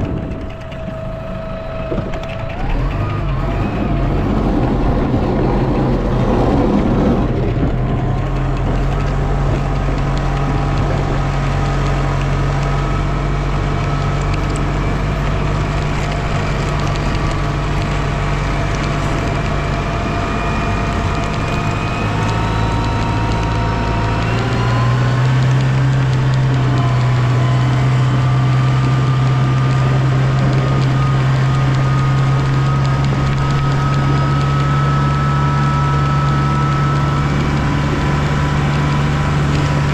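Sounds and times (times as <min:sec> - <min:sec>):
snow plow engine running: 0:00.0 - 0:39.9.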